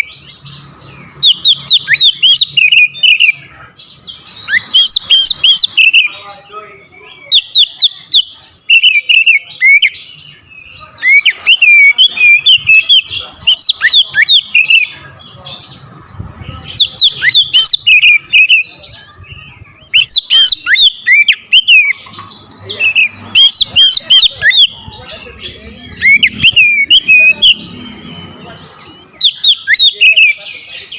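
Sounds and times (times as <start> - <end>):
magpie-robin singing: 0.0 - 30.9.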